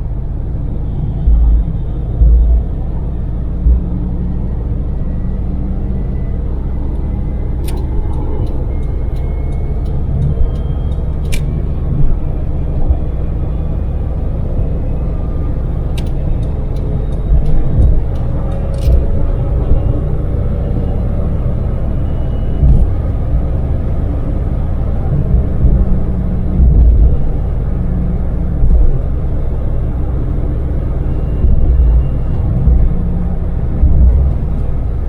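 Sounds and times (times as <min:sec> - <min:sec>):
van engine and road noise: 0:00.0 - 0:35.0
sharp clicks and rattles: 0:06.9 - 0:13.2, 0:15.5 - 0:20.0.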